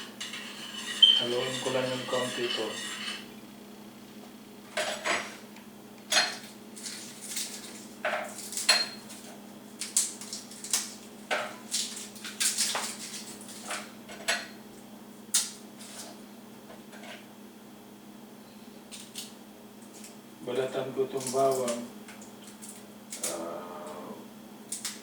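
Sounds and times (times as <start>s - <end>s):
utensil stirring in metal pot: 0.0s - 3.3s.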